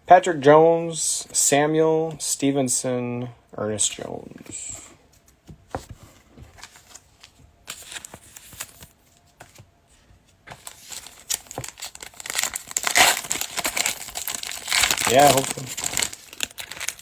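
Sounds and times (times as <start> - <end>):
wrapper being torn and crinkled: 10.6 - 17.0.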